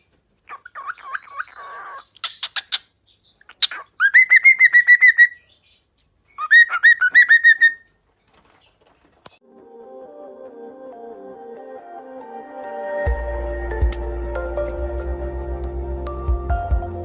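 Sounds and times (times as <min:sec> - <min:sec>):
cockatiel chirping and whistling: 0:03.6 - 0:05.6, 0:06.4 - 0:07.9.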